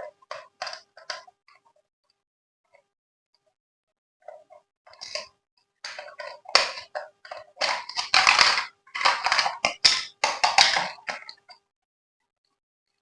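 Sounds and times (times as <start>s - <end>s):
plastic packaging crinkling: 5.0s - 5.3s, 5.9s - 11.5s.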